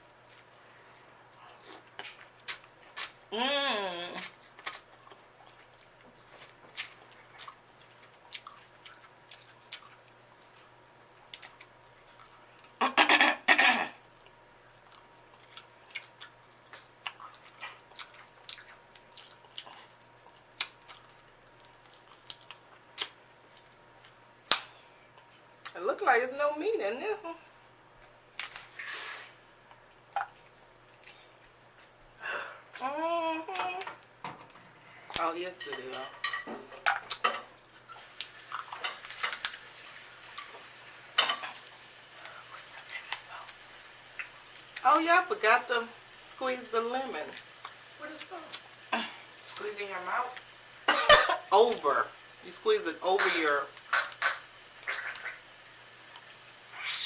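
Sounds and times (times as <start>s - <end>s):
chewing: 4.2s - 12.8s, 14.0s - 24.2s, 53.8s - 55.5s
crab legs being cracked by hand: 22.2s - 23.2s, 28.4s - 28.7s, 38.2s - 39.6s, 53.8s - 55.4s
crab shells cracking: 28.4s - 28.7s, 38.2s - 39.7s.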